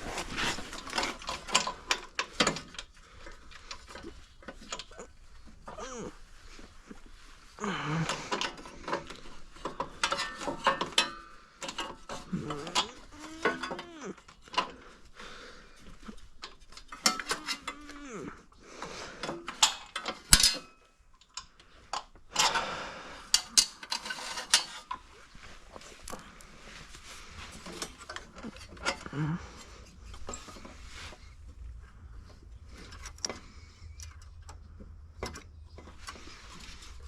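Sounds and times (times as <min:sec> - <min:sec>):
hand tools clinking on metal: 0:07.9 - 0:14.8, 0:16.4 - 0:18.3, 0:19.2 - 0:25.1.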